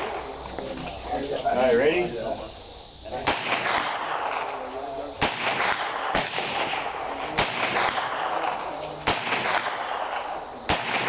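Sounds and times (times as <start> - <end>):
carbine gunshots with echo: 0.0 - 0.7, 3.1 - 11.0.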